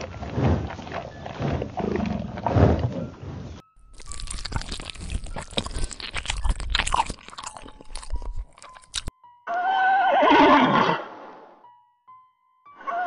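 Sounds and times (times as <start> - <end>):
gorilla crunching a carrot: 0.0 - 3.0, 3.8 - 9.1
horse whinnying: 9.5 - 11.2.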